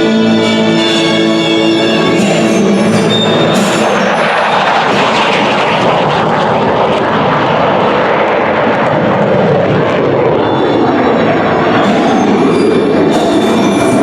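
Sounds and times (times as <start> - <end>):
jet engine noise: 0.0 - 14.0.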